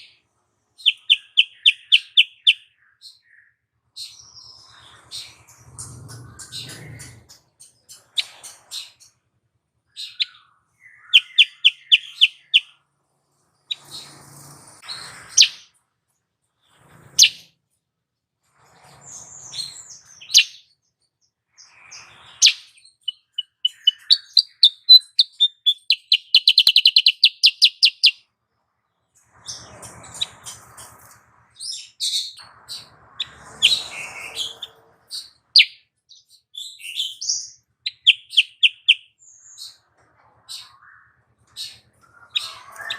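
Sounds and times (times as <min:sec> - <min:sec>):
buzzy bird calls: 0:00.8 - 0:02.7, 0:10.0 - 0:12.7, 0:21.6 - 0:28.2, 0:36.8 - 0:39.8, 0:40.5 - 0:42.9
bird chirps and trills: 0:00.8 - 0:09.2, 0:09.9 - 0:12.8, 0:13.5 - 0:15.8, 0:16.6 - 0:17.5, 0:18.7 - 0:28.3, 0:29.1 - 0:42.9.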